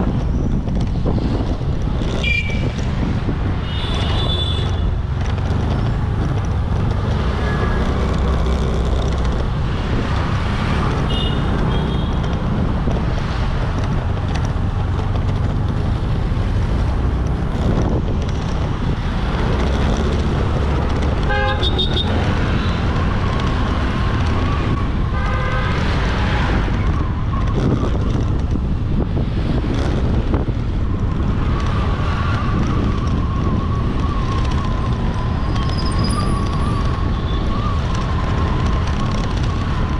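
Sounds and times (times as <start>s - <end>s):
motorbike engine and road noise: 0.0s - 39.9s
vehicle horns honking: 3.6s - 4.9s, 11.0s - 12.2s, 21.2s - 22.8s.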